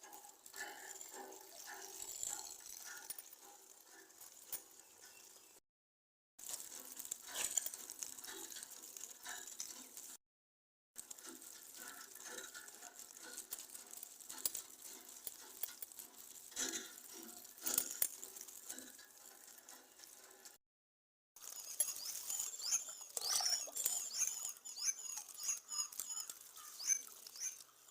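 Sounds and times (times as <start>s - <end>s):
rustles and clicks: 6.4s - 10.2s, 11.0s - 20.6s, 21.4s - 27.9s.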